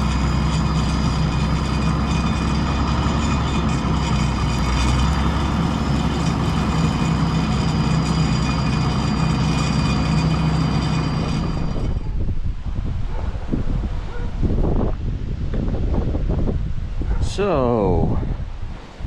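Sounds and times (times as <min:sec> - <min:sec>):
thin steady whine: 0:00.0 - 0:12.3
combine harvester engine hum: 0:00.0 - 0:12.4.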